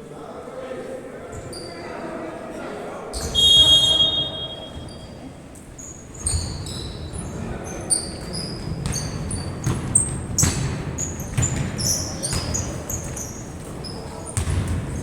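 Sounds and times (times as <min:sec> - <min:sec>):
murmur of voices: 0:00.0 - 0:15.0
sneaker squeaks on court: 0:03.1 - 0:05.2, 0:05.8 - 0:14.8
basketball bouncing: 0:08.2 - 0:15.0.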